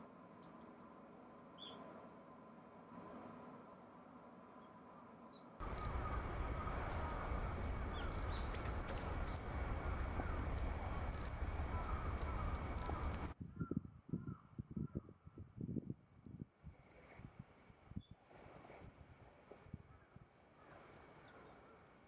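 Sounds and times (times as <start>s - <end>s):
birds giving short high calls: 5.6s - 13.3s
low outdoor rumble: 5.6s - 13.4s.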